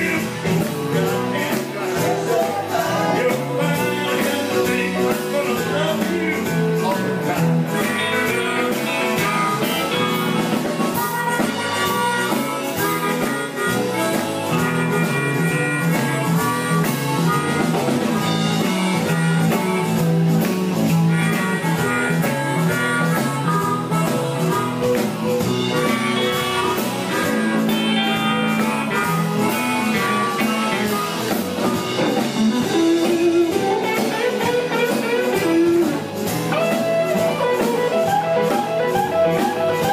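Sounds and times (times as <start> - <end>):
blues band playing: 0.0 - 39.9
guitar: 0.0 - 39.9.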